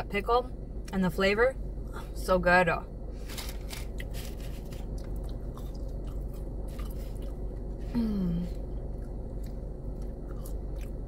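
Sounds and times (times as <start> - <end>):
low hum inside a car: 0.0 - 11.0
chewing fries: 3.4 - 7.8, 8.7 - 11.0
hummed mmm: 5.0 - 11.0.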